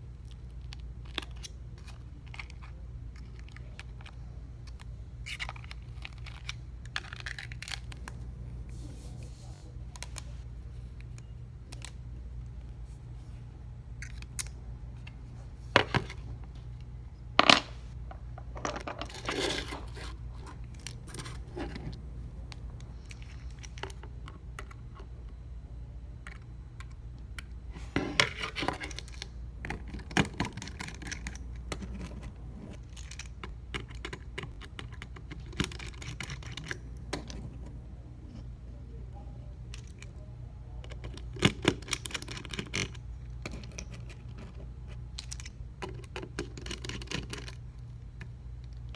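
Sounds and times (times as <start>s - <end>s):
steady low hum: 0.0s - 48.9s
small tools clicking and scraping: 28.2s - 37.4s, 40.8s - 47.6s.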